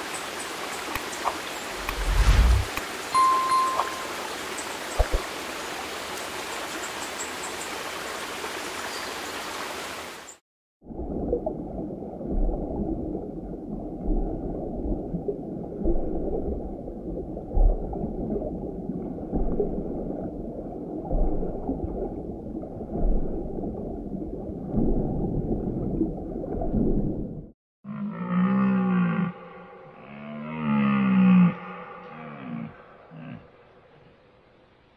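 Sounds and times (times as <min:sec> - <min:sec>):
water-side ambience hiss: 0:00.0 - 0:10.4.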